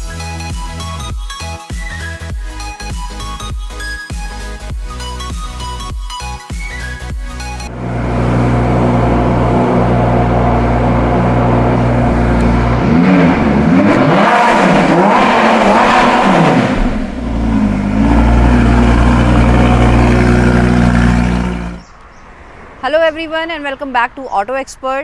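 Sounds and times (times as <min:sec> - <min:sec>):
car engine idling and revving: 0:06.8 - 0:22.2.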